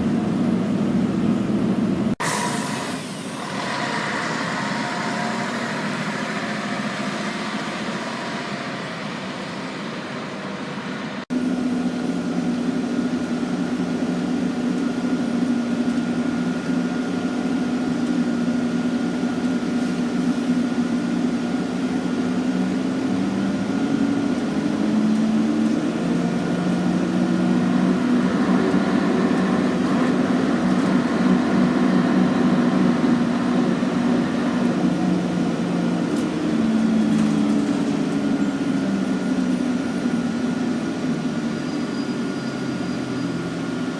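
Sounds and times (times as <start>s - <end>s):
bus engine hum: 0.0s - 43.9s
faint high whine: 2.2s - 19.2s.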